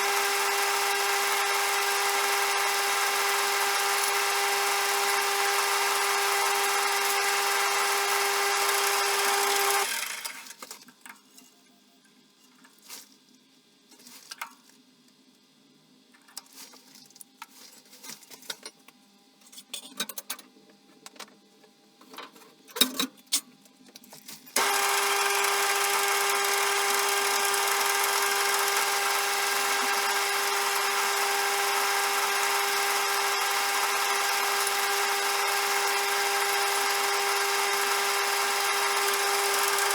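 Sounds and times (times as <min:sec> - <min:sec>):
bench lathe whining: 0:00.0 - 0:10.5, 0:24.6 - 0:39.9
tools and metal clicking and knocking: 0:19.5 - 0:21.3, 0:22.1 - 0:24.3.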